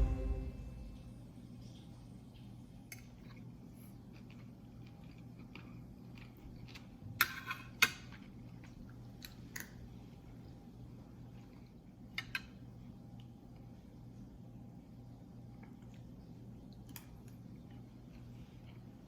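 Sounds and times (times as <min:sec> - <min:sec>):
person chewing: 0:04.0 - 0:07.0.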